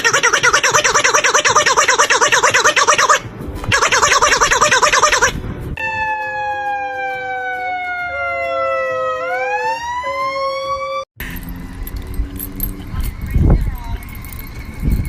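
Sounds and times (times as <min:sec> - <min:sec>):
siren-like wail: 0:00.0 - 0:11.1.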